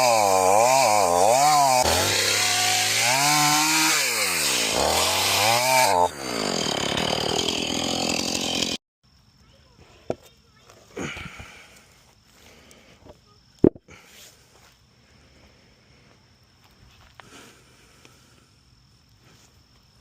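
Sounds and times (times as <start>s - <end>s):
chainsaw cutting log: 0.0s - 8.8s.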